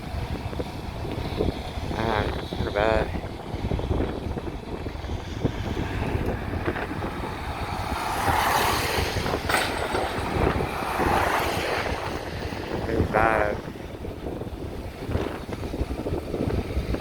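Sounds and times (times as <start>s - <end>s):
wind on microphone: 0.0s - 17.0s
vehicle passing: 3.6s - 16.8s.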